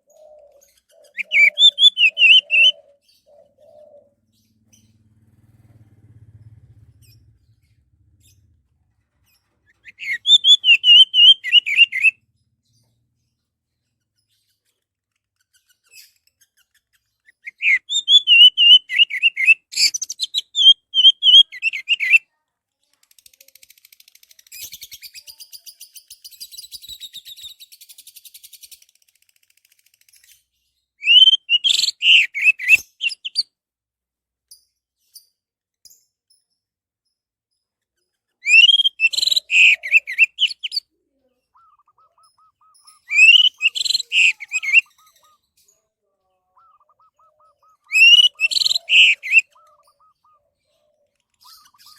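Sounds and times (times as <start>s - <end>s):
buzzy rasping bird chatter: 0.2s - 3.5s, 9.2s - 12.1s, 22.8s - 33.4s, 37.8s - 51.9s
thrush singing whistled phrases: 1.2s - 2.8s, 9.9s - 12.2s, 17.5s - 22.2s, 31.0s - 33.4s, 38.4s - 40.8s, 41.6s - 45.1s, 46.6s - 50.4s.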